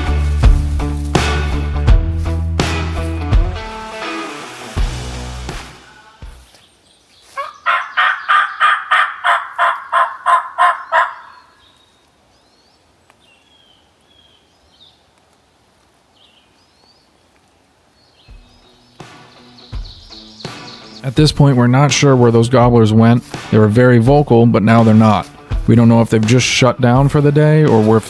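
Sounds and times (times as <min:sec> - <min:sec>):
faint songbird chirps: 0:06.4 - 0:21.8
wild turkey calling: 0:06.5 - 0:14.5, 0:18.1 - 0:23.8.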